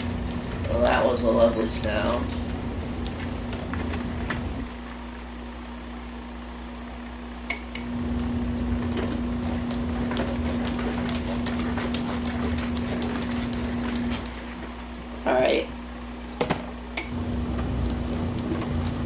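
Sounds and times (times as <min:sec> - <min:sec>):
washing machine motor hum: 0:00.0 - 0:19.0
water churning: 0:08.0 - 0:14.9.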